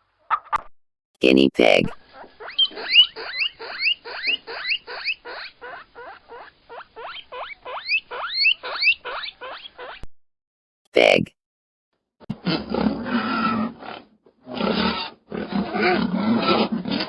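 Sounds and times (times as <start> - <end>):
guinea pig squeaking: 2.0 - 10.1.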